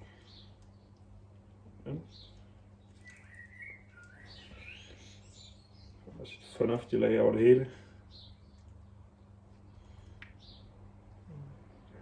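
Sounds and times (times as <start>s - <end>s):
steady low hum: 0.0s - 12.0s
faint high chirp: 3.0s - 6.0s.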